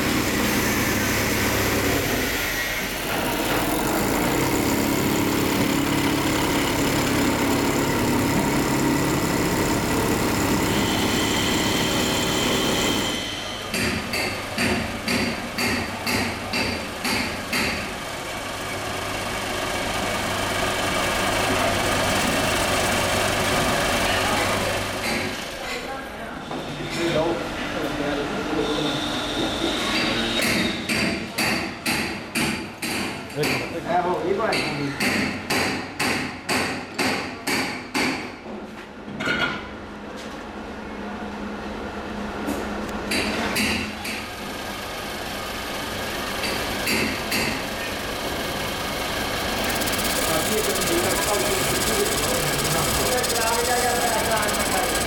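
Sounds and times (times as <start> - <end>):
hammer striking metal: 13.7 - 17.9, 30.0 - 33.7, 34.4 - 38.4, 46.4 - 47.6
machine humming: 44.3 - 55.0.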